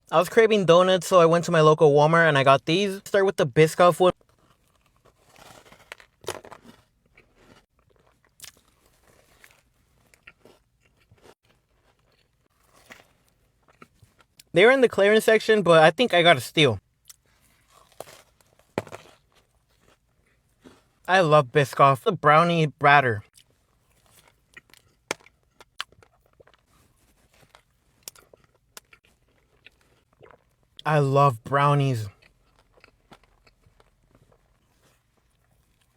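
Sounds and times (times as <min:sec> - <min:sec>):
biting and chewing doughnut: 0:04.1 - 0:14.5, 0:16.8 - 0:21.1, 0:23.2 - 0:30.9, 0:31.6 - 0:35.9.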